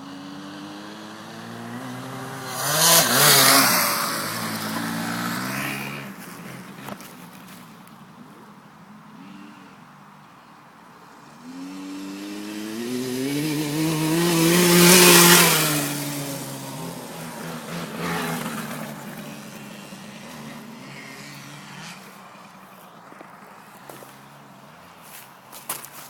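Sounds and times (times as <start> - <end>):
motocross bike engine revving: 0.0 - 7.0, 11.2 - 22.7.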